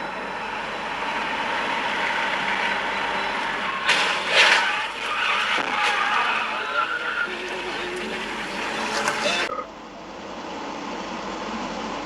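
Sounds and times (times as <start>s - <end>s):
vehicle and road noise: 0.0s - 12.0s
loud sudden bangs: 0.3s - 9.3s.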